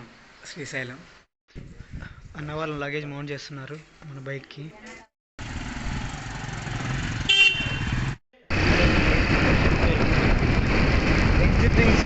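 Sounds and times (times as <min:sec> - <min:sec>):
road noise: 0:05.0 - 0:12.0
motorcycle engine: 0:05.4 - 0:11.3
motorcycle horn toot: 0:07.2 - 0:08.1.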